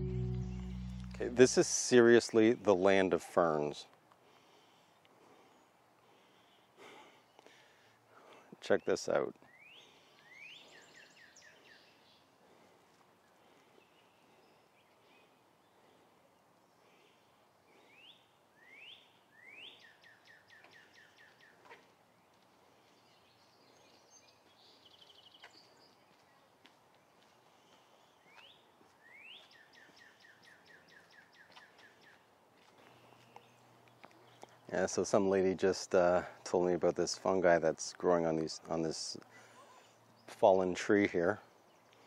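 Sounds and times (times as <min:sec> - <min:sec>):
songbird singing: 0:00.0 - 0:02.0, 0:08.8 - 0:12.4, 0:16.6 - 0:35.6, 0:38.2 - 0:42.0
low hiss: 0:00.0 - 0:02.5.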